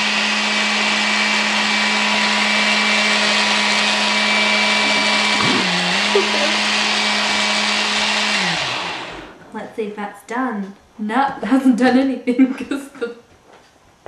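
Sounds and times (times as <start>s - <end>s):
food processor motor whirring: 0.0s - 9.4s.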